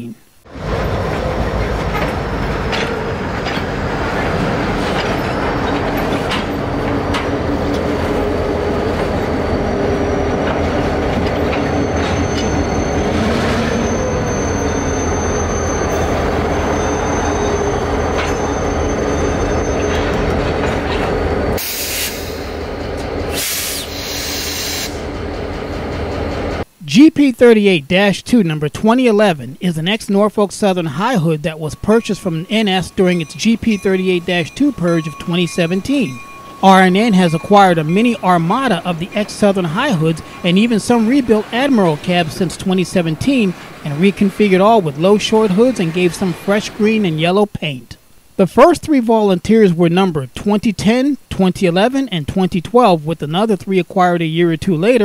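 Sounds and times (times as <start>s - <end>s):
train wheels rumbling on rail: 0.5s - 26.7s, 31.8s - 47.2s
high wheel squeal: 0.6s - 25.7s, 31.0s - 47.1s.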